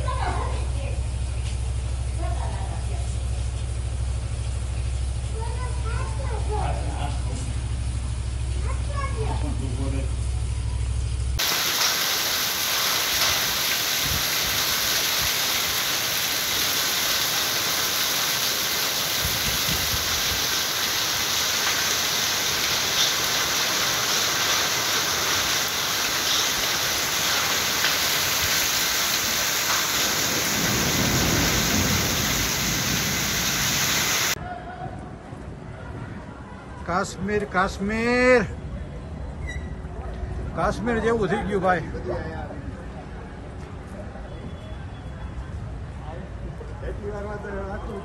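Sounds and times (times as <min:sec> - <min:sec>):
hail tapping: 0:11.4 - 0:34.4
heavy rain hissing: 0:11.4 - 0:34.4.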